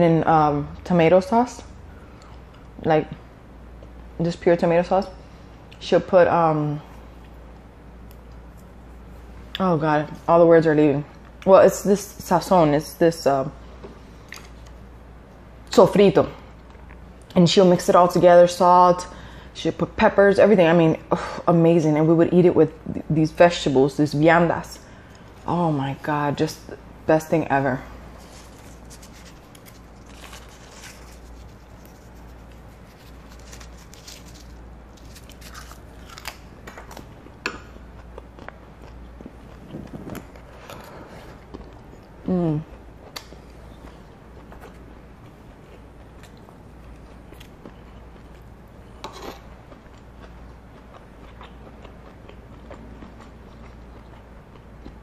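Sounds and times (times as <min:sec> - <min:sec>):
steady low hum: 0:00.0 - 0:55.0
person chewing with crunches: 0:28.0 - 0:55.0.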